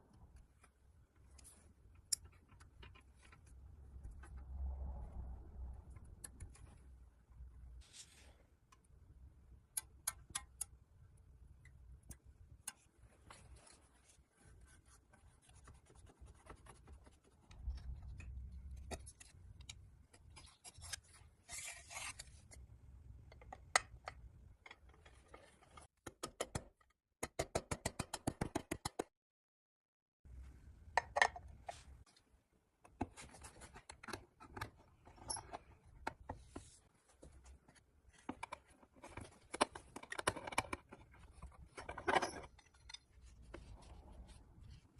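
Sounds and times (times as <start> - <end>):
taps and clicks on metal parts: 9.7 - 10.8.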